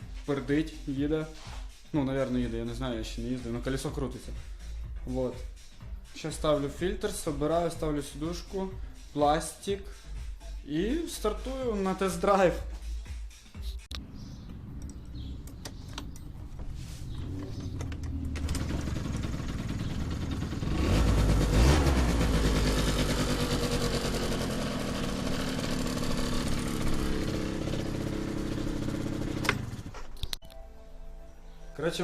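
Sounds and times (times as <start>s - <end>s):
scooter engine revving: 14.3s - 30.1s.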